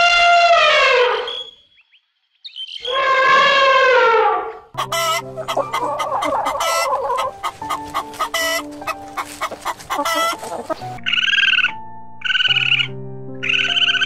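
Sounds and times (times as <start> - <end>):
repeated animal call: 0.0 - 1.7, 2.5 - 14.0
chickens clucking: 4.8 - 11.6.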